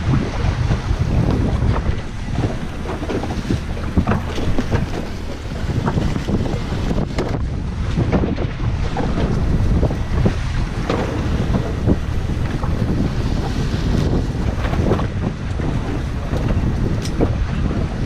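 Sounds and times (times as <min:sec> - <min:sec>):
waves washing against boat hull: 0:00.0 - 0:18.0
wind buffeting microphone: 0:00.0 - 0:18.0.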